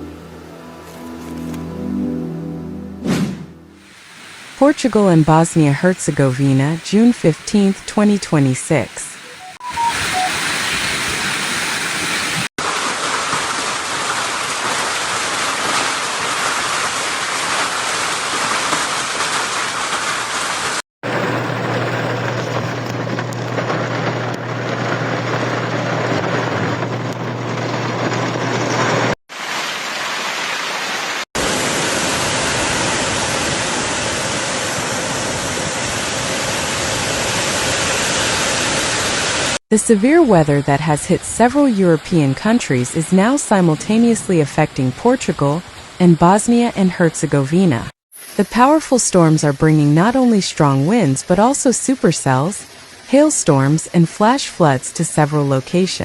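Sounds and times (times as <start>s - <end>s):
heavy rain pelting down: 3.8s - 39.6s.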